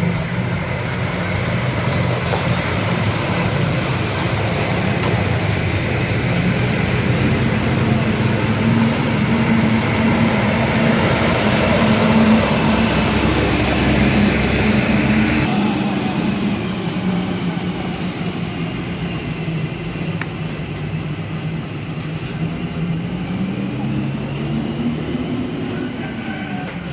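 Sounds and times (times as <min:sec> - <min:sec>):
diesel engine running: 0:00.0 - 0:26.9.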